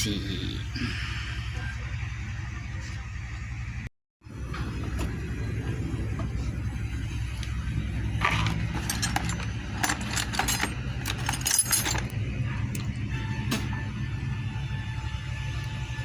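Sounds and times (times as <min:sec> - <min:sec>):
low background hum: 0:00.0 - 0:16.0
metal tools clinking: 0:08.2 - 0:12.2.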